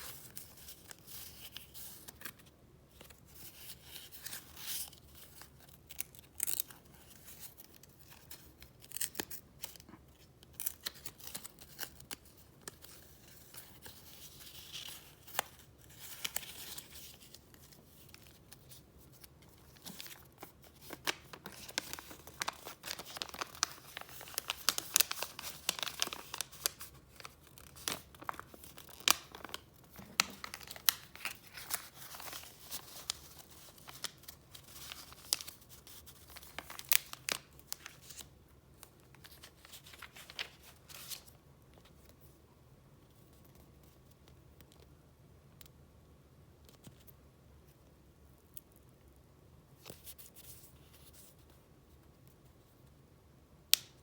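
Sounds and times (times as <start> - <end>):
paper rustling and crackling: 10.6 - 41.4.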